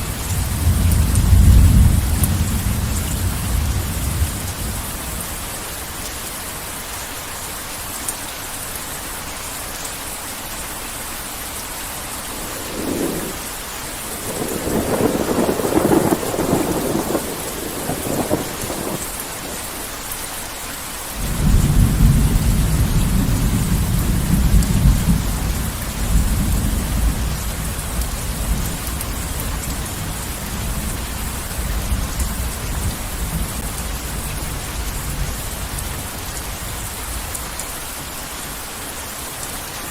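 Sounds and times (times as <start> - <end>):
thunder rumbling: 0.0 - 5.5, 12.0 - 19.8, 21.2 - 37.4
heavy rain: 0.0 - 39.9.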